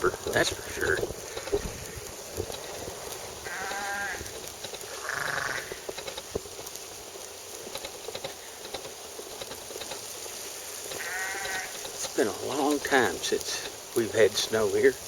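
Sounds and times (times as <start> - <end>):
faint scattered ticks: 0.0 - 15.0
animal bleating: 3.4 - 4.3, 4.9 - 5.8, 11.0 - 11.8.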